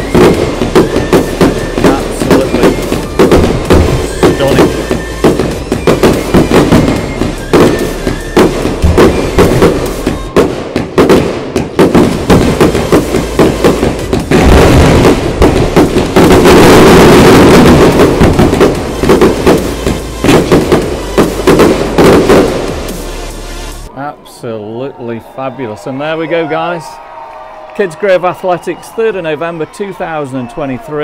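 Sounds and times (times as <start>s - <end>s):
firework bangs: 0.0s - 23.9s.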